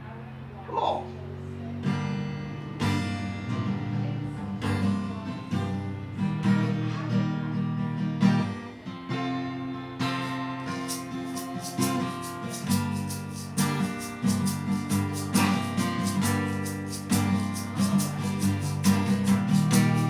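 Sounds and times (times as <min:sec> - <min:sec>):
acoustic guitar strummed: 0:01.1 - 0:20.0.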